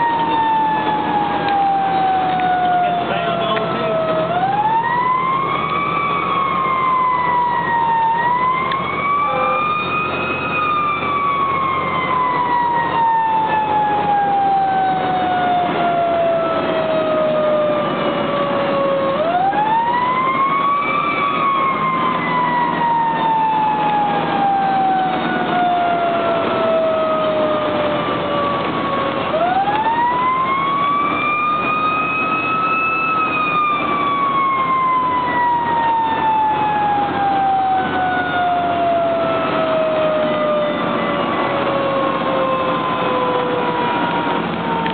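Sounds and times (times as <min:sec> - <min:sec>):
fire engine siren wailing: 0:00.0 - 0:44.9
road and engine rumble: 0:00.0 - 0:44.9.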